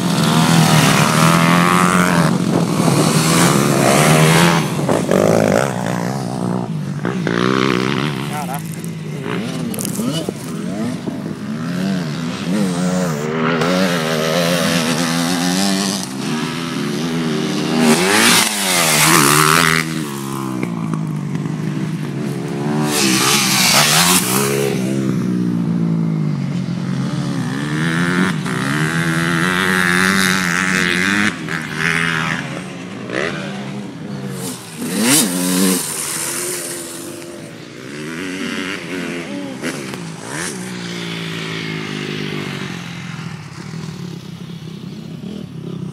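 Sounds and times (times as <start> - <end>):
dirt bike engines revving: 0.0 - 45.9.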